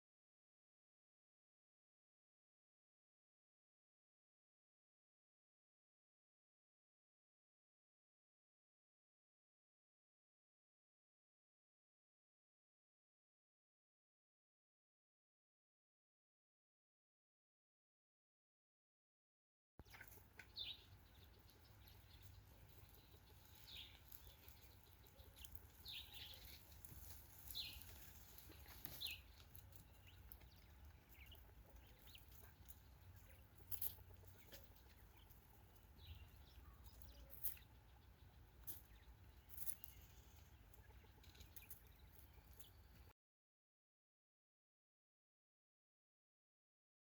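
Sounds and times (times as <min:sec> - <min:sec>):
quail chirping: 0:19.8 - 0:43.0
low steady hum: 0:19.8 - 0:43.1.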